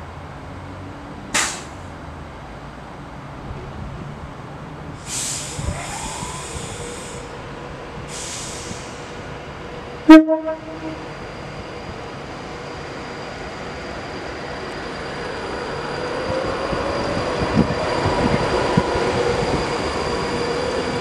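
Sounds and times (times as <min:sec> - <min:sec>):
air hiss bursts: 0:01.4 - 0:01.8, 0:05.0 - 0:07.3, 0:08.1 - 0:09.2
electric train whine: 0:04.8 - 0:21.0
loud train horn blast: 0:10.1 - 0:11.1.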